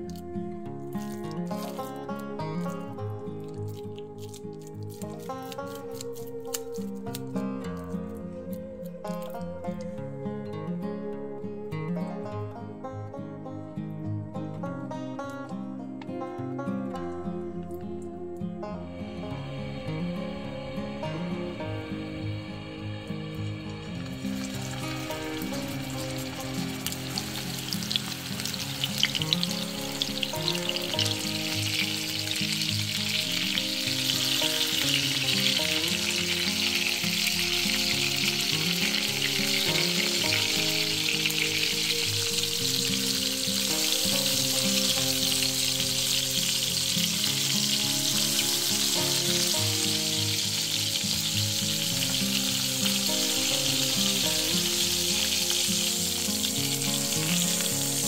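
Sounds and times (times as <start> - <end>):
soft background music: 0.0 - 58.0
meat patties sizzling in oil: 1.0 - 2.8, 23.4 - 58.0
oil popping: 23.7 - 58.0.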